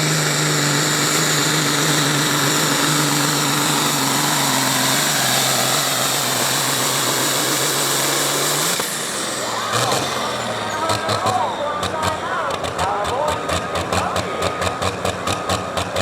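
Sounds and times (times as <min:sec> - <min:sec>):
engine running at high revs: 0:00.0 - 0:16.0.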